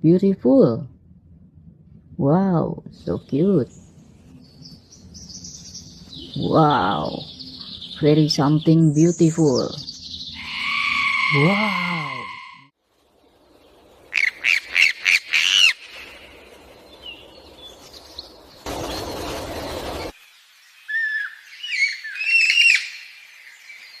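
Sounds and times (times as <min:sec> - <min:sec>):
small bird chirping: 0:03.0 - 0:20.1
rushing noise burst: 0:15.7 - 0:20.1.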